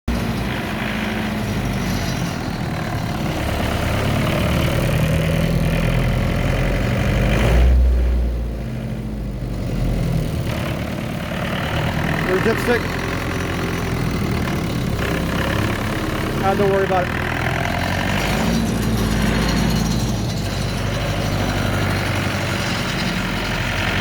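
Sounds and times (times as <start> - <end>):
generator engine running: 8.6 - 24.0.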